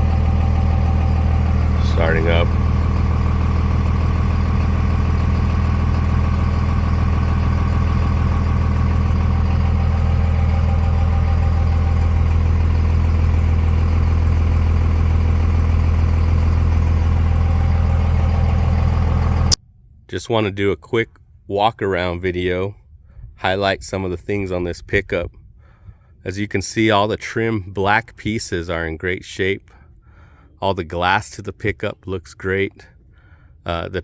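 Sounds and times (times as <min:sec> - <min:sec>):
diesel engine idling: 0:00.0 - 0:19.6.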